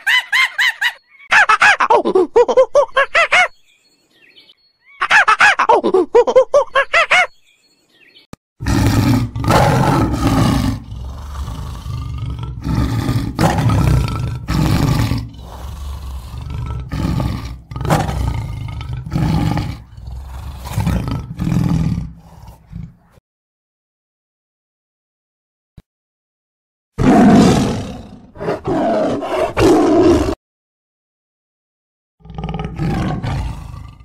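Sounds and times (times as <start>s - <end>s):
tiger roaring: 8.6s - 23.2s, 27.0s - 30.4s, 32.2s - 34.0s.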